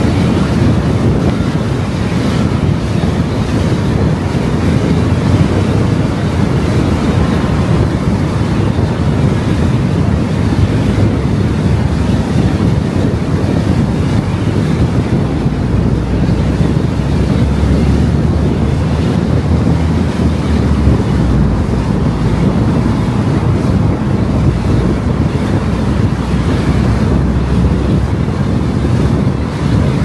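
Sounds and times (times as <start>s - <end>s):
car road and wind noise: 0.0s - 30.0s.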